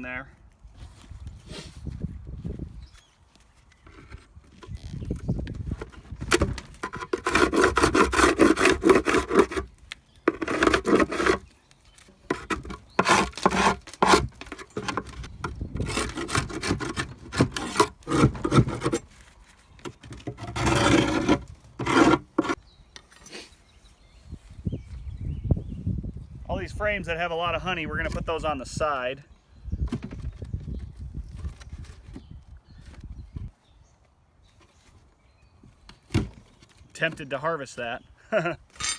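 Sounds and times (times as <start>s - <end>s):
wooden hive frames scraping: 3.8s - 9.7s, 10.3s - 11.5s, 12.2s - 22.6s.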